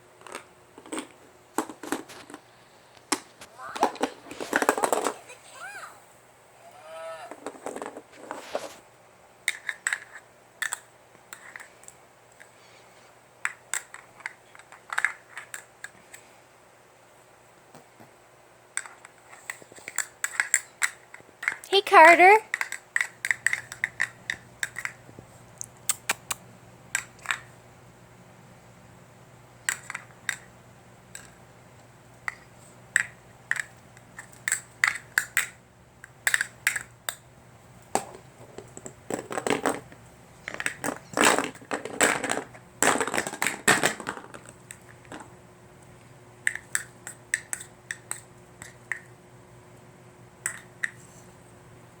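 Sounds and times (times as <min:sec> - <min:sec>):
small hard objects clattering: 0:38.0 - 0:45.3.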